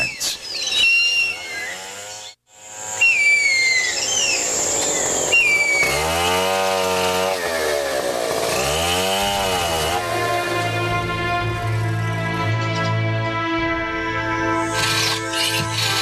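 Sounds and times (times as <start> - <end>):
whistled bird calls: 0.0 - 2.4, 3.0 - 5.9
chainsaw revving: 1.4 - 12.0, 14.6 - 16.0
steady music tones: 9.3 - 16.0.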